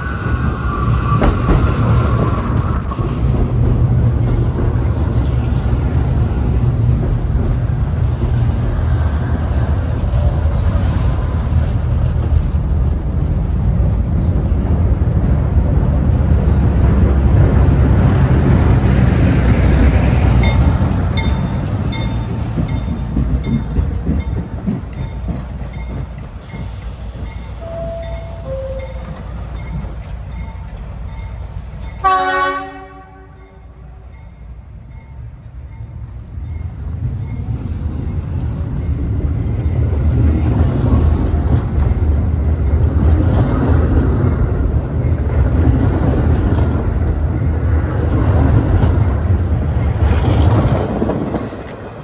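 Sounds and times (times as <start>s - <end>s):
subway train rumbling: 0.0s - 52.0s
short high beeps: 26.6s - 30.0s.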